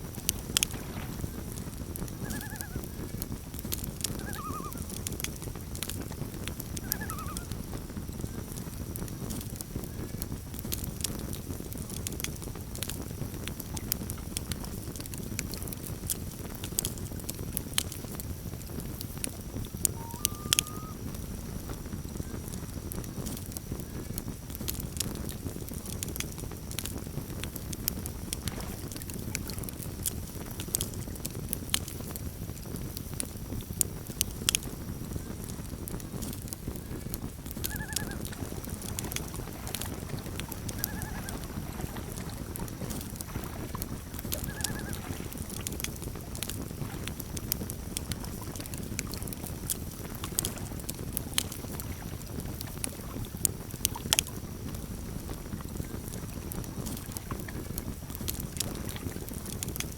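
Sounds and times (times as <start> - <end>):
campfire crackling and popping: 0.0 - 59.9
trilled chirps: 20.0 - 21.0.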